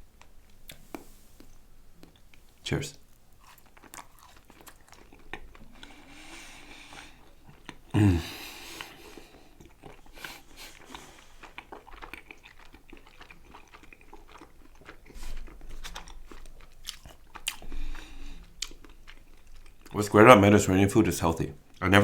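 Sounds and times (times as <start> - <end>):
chewing and biting food: 3.2 - 20.0
wet mouth clicks and crunches: 3.4 - 6.0, 9.6 - 17.8, 18.4 - 20.0.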